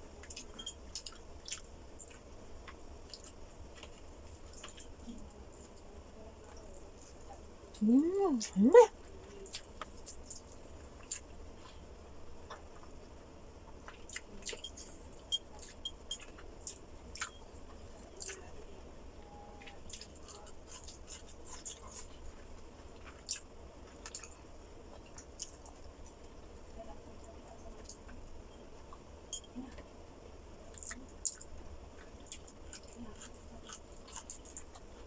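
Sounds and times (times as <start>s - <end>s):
person chewing with wet smacks: 0.2s - 7.3s, 9.2s - 11.8s, 12.4s - 13.0s, 13.7s - 18.5s, 19.6s - 26.4s, 30.7s - 35.0s.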